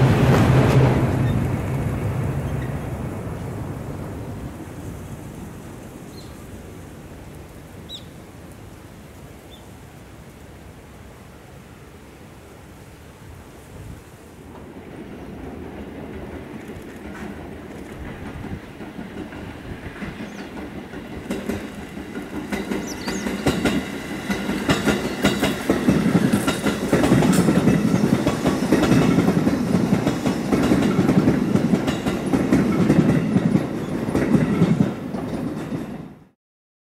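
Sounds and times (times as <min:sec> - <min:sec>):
train passing on rails: 0:00.0 - 0:36.4
wheels clicking over rail joints: 0:14.5 - 0:36.2.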